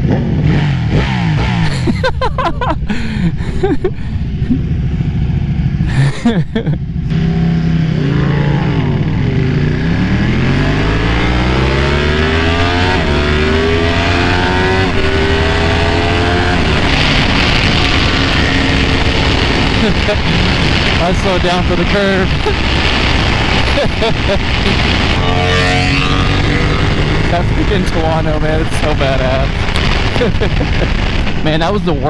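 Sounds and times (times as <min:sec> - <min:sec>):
motorcycle engine accelerating: 0:00.0 - 0:32.0
wind rush on microphone: 0:12.2 - 0:32.0.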